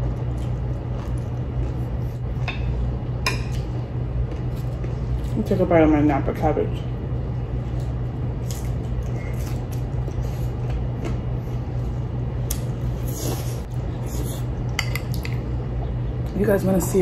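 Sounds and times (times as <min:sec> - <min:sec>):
chewing crunchy cabbage: 0:00.0 - 0:02.4, 0:07.4 - 0:15.3
steady low hum: 0:00.0 - 0:17.0.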